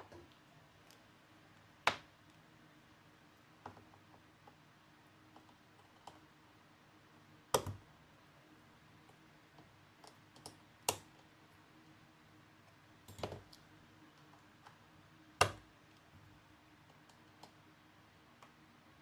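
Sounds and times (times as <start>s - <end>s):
hand tools clicking on laptop: 7.5s - 7.8s, 9.6s - 11.3s, 13.1s - 13.6s, 15.4s - 15.7s, 16.8s - 17.6s.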